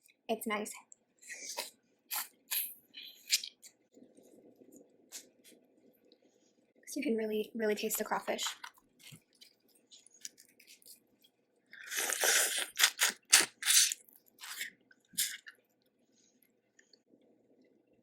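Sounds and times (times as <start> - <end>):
chewing: 8.4 - 11.0, 11.8 - 15.6.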